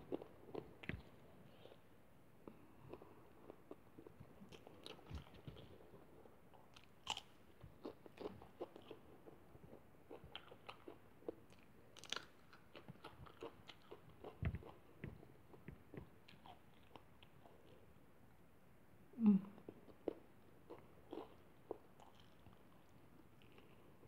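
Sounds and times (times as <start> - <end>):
person chewing food: 0.0 - 17.9, 19.6 - 24.0.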